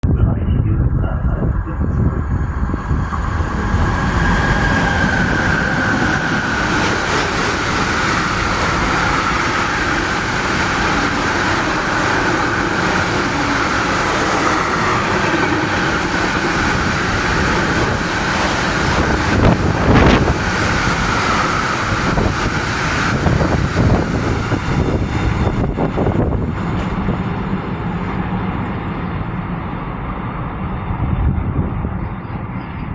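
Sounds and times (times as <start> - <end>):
train rattling: 0.0 - 32.0
freight train rumbling on rails: 0.0 - 32.9.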